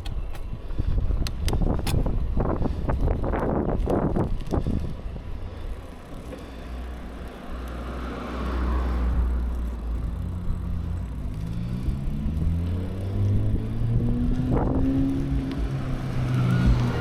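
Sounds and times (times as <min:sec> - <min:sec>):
wind buffeting microphone: 0:00.0 - 0:06.2, 0:13.2 - 0:17.0
bicycle rattles and knocks: 0:00.0 - 0:13.2.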